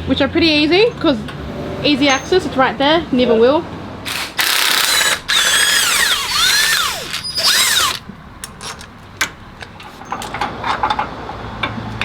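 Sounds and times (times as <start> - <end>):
power tool running: 4.1 - 8.1.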